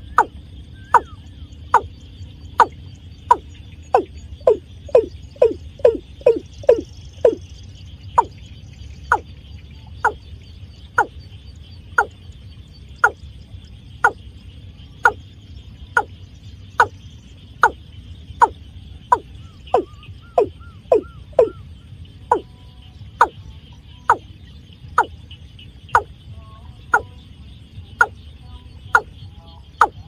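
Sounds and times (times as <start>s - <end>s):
faint insect-like hiss: 0.0s - 30.0s.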